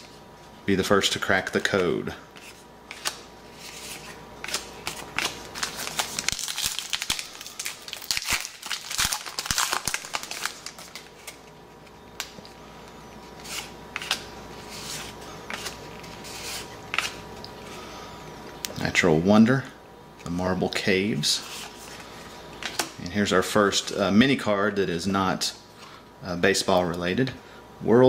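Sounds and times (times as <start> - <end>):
cards rustling and flicking: 1.3 - 17.4
card pack wrapper crinkling: 2.9 - 11.6.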